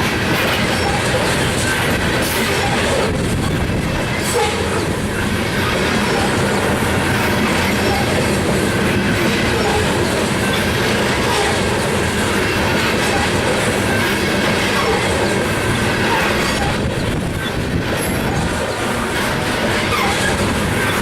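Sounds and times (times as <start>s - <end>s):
train wheels clattering on rails: 0.0s - 21.0s.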